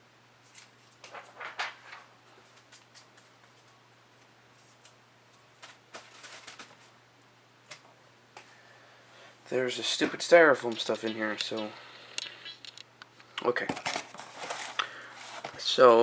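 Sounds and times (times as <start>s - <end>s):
paper and packing material rustling: 5.5s - 7.0s, 13.6s - 16.0s.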